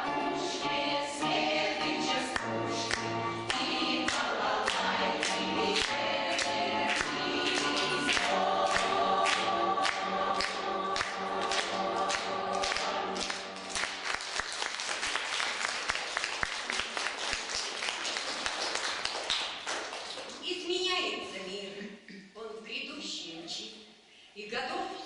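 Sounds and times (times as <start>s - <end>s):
choir singing: 0.0s - 13.9s
rhythmic accompaniment: 0.0s - 15.1s
audience applauding: 4.1s - 20.4s.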